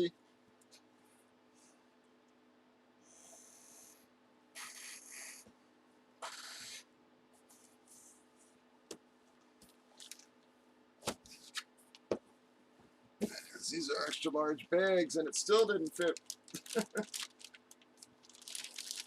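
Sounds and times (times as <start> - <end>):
plastic bag crinkling: 10.0 - 10.3, 15.4 - 19.0.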